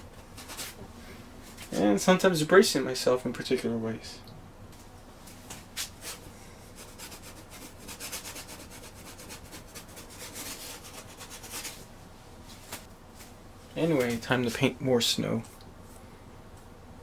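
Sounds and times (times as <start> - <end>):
paintbrush scrubbing on canvas: 6.0 - 11.9.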